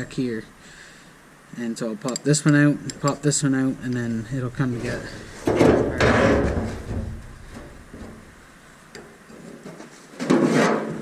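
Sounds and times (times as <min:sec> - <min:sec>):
scraping metal rattle: 0:04.2 - 0:08.5.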